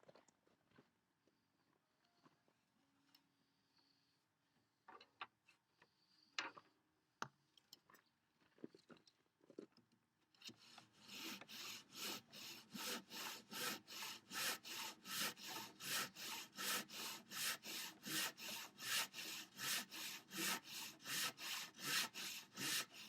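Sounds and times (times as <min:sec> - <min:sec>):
handsaw cutting wood: 0:10.4 - 0:23.0.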